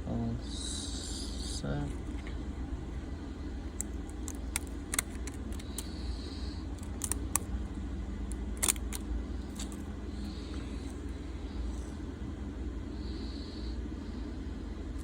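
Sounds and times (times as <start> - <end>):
steady low hum: 0.0 - 15.0
hands handling a phone clicking: 3.8 - 5.9.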